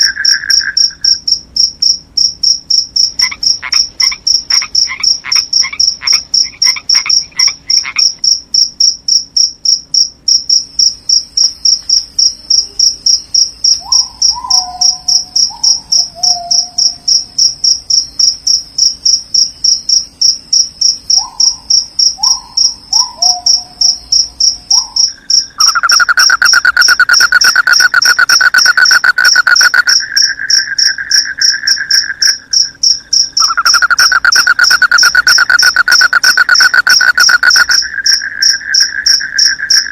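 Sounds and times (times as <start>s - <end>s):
frog croaks: 0.0s - 2.0s, 3.0s - 8.4s, 19.9s - 39.9s
crickets chirping: 0.0s - 39.9s.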